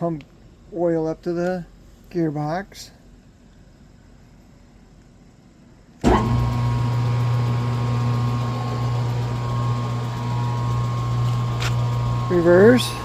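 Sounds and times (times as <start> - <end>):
lathe motor humming: 6.0 - 13.0.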